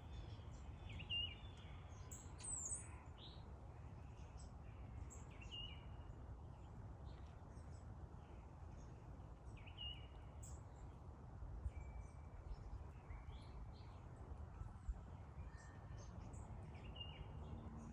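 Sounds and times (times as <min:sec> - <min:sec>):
sparrows chirping: 0:00.0 - 0:03.4, 0:15.5 - 0:17.9.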